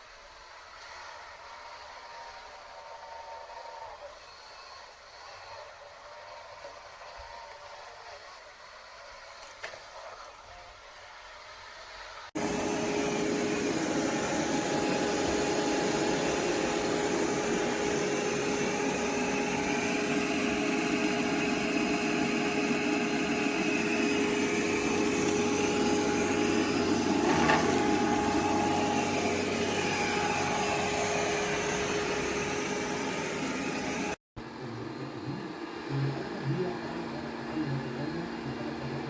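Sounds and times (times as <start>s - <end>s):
robot vacuum whirring: 12.4s - 34.2s.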